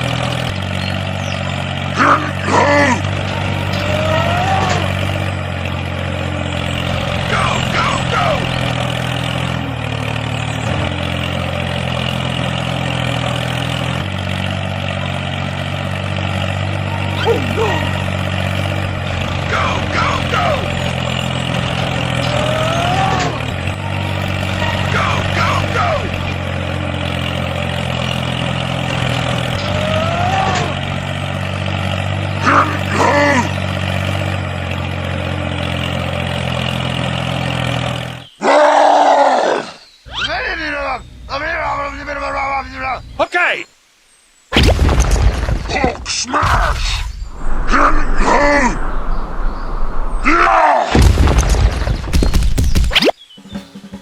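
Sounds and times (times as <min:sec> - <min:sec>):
small tractor motor running: 0:00.0 - 0:38.3.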